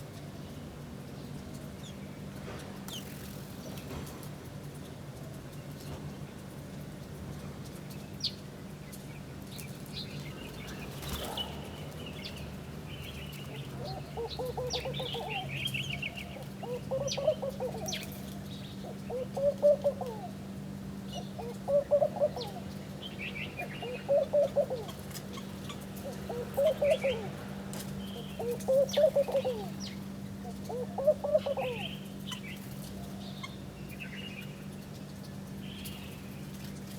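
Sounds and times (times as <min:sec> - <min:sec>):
small birds chirping: 0:07.9 - 0:20.4, 0:21.0 - 0:36.9.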